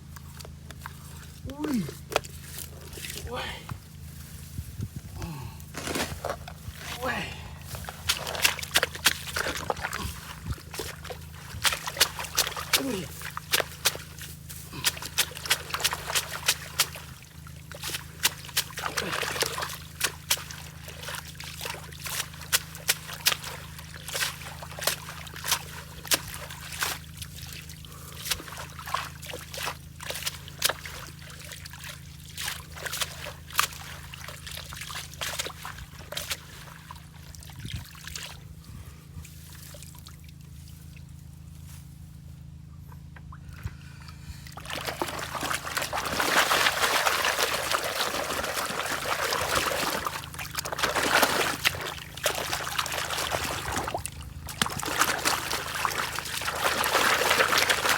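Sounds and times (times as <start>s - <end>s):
water trickling and sloshing: 5.8s - 41.8s, 42.9s - 57.9s
splashing water rush: 44.6s - 57.9s.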